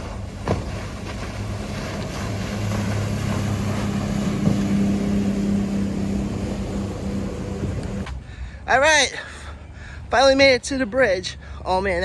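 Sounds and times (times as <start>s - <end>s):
motorboat engine drone: 0.0s - 8.6s
wind: 0.0s - 12.0s.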